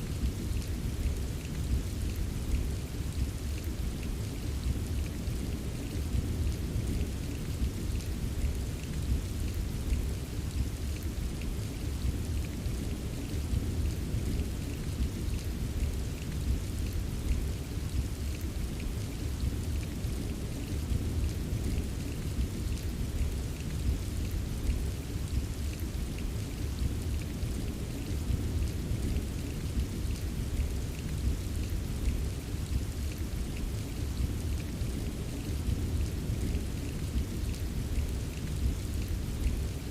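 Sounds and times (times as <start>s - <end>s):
rain wash: 0.0s - 39.9s
raindrop ticks: 0.0s - 39.9s.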